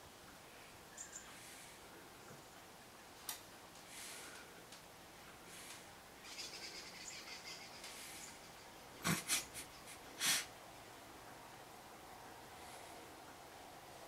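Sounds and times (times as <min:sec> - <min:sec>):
faint bird chirping: 0:00.3 - 0:03.2, 0:05.4 - 0:10.2.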